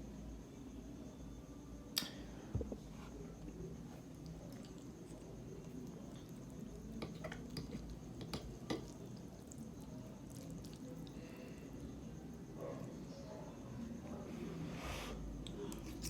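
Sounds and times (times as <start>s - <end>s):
wet squishing and chewing: 4.0s - 11.3s, 15.4s - 16.0s.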